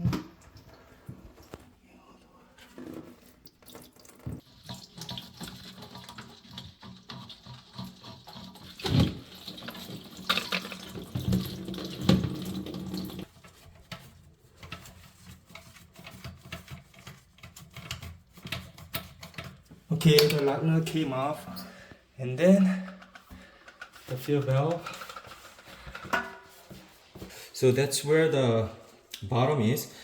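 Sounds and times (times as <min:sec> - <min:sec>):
water running and splashing: 0:03.5 - 0:13.3.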